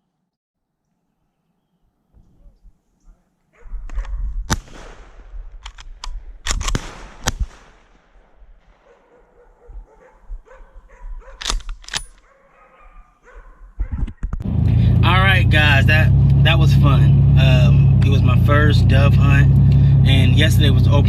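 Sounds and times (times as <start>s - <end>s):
dog barking: 3.5s - 4.3s, 8.8s - 11.4s, 12.2s - 14.2s.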